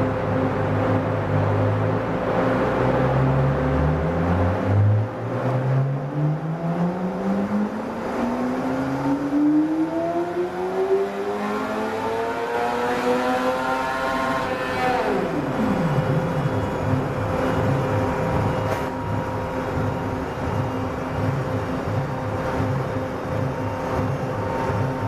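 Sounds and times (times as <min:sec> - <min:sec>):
sport bike engine revving: 0:02.6 - 0:17.1.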